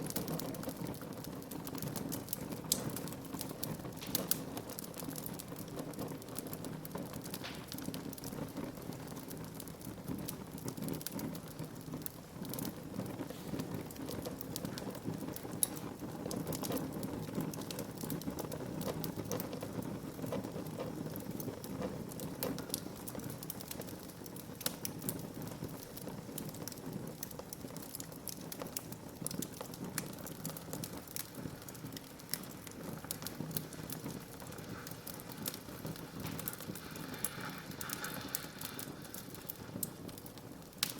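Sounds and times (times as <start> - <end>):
fire crackling and popping: 0.0 - 40.9
fire flame rushing: 0.1 - 40.9.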